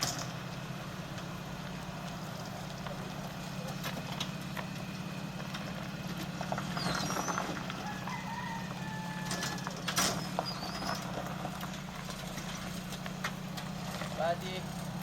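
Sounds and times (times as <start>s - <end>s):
vehicle engine idling: 0.0s - 15.0s
birds chirping: 6.3s - 11.8s.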